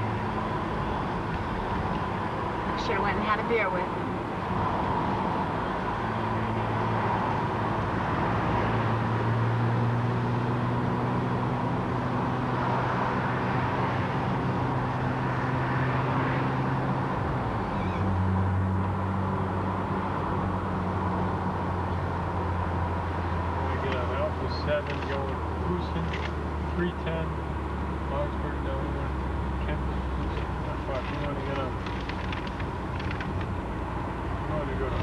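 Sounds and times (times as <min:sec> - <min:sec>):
car engine and road noise: 0:00.0 - 0:35.0.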